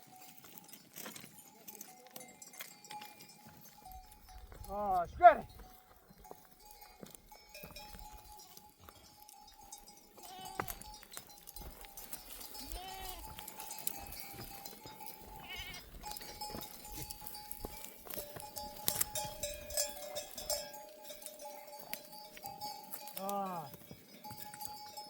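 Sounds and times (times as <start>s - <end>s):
sheep bells clinking: 0.0s - 25.0s
sheep bleating: 10.2s - 10.9s, 12.6s - 13.4s, 15.3s - 16.0s.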